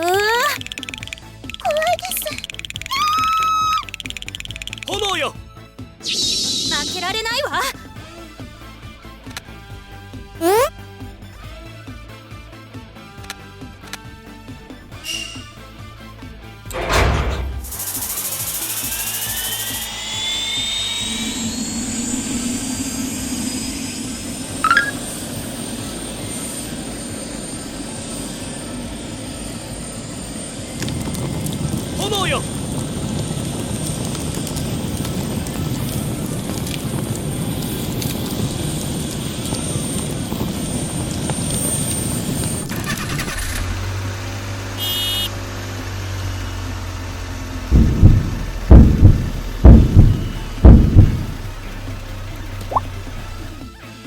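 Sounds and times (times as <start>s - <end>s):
helicopter engine whooshing: 6.0s - 8.2s, 17.6s - 44.7s, 45.9s - 53.7s
short high chirp: 6.1s - 7.0s, 15.0s - 15.5s, 24.6s - 25.0s
low mechanical hum: 16.7s - 42.8s, 43.6s - 53.7s
high electronic tone: 19.5s - 25.0s
music beat thumps: 47.7s - 51.6s.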